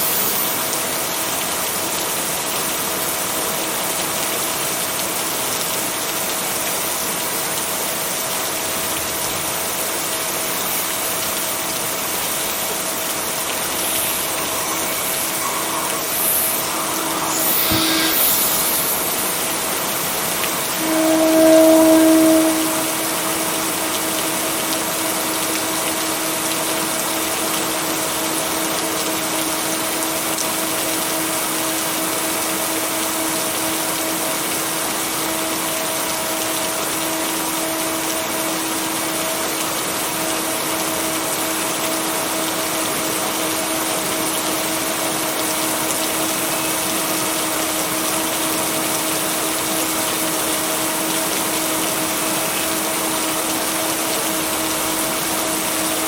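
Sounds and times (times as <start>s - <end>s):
steady rain: 0.0s - 56.0s
binaural beat tones humming: 12.3s - 24.5s.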